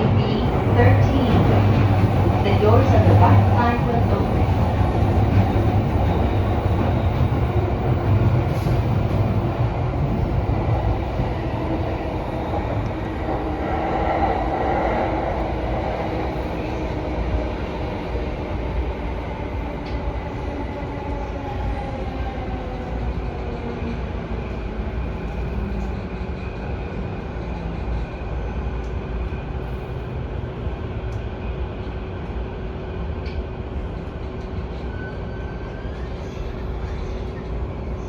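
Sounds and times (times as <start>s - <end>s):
faint train whine: 0.0s - 20.5s
train wheels rumbling on rails: 0.0s - 38.0s.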